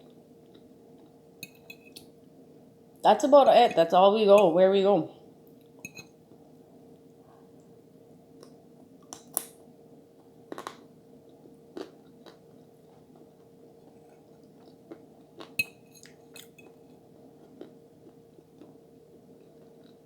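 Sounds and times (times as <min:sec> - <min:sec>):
faint steady hum: 0:00.0 - 0:20.0
person chewing: 0:10.5 - 0:18.8.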